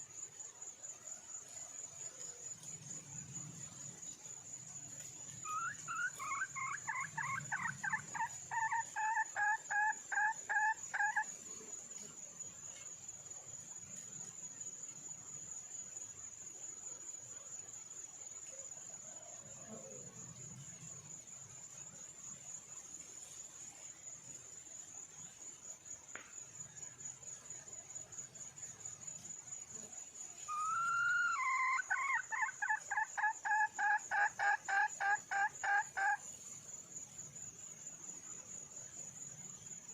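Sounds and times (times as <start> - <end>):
high insect trill: 0.0 - 39.9
hen clucking: 5.5 - 11.2, 30.5 - 36.2.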